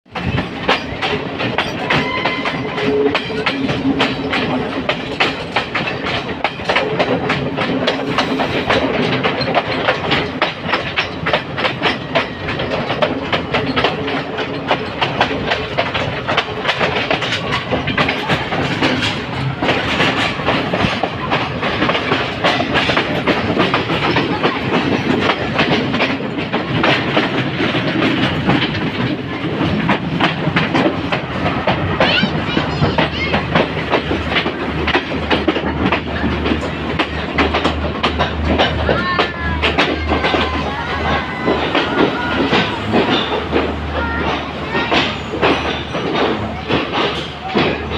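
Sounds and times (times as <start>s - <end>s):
train coaches rumbling: 0.0s - 47.9s
wheels clickety-clack over rails: 0.1s - 47.9s.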